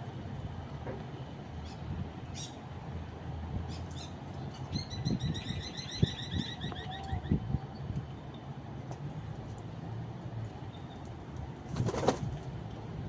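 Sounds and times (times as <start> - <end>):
pigeons scuffling: 11.6 - 12.5
wing flaps: 11.7 - 12.4.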